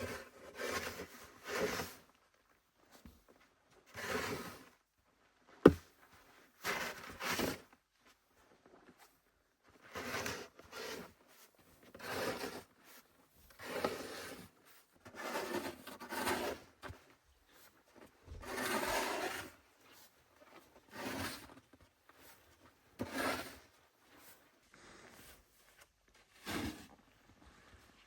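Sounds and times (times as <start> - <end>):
rough scraping strokes: 15.2 - 16.7, 18.4 - 19.5.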